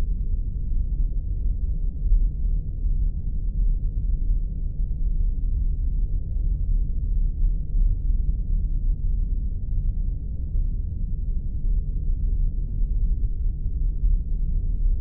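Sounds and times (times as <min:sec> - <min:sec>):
deep rumbling drone: 0:00.0 - 0:15.0.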